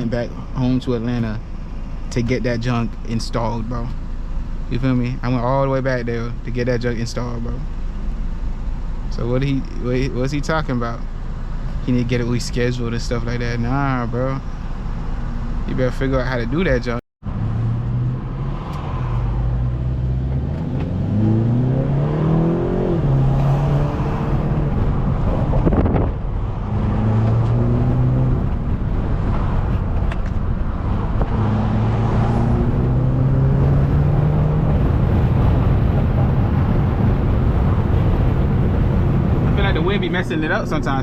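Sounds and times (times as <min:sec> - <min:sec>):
car engine accelerating hard: 0:17.2 - 0:41.0.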